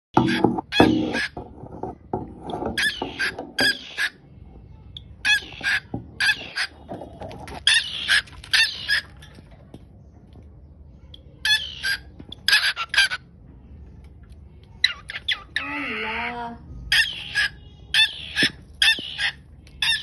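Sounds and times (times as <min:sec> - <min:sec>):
birds squawking: 0:00.2 - 0:01.4, 0:02.7 - 0:04.2, 0:05.2 - 0:09.3, 0:16.9 - 0:20.0.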